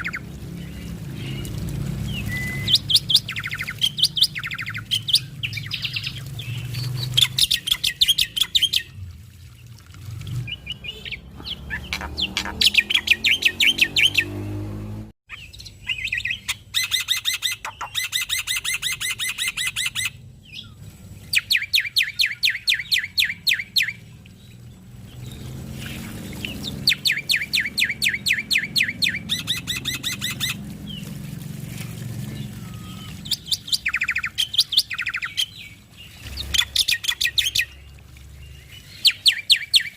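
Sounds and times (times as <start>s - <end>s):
bird singing rattling notes: 10.2s - 14.7s.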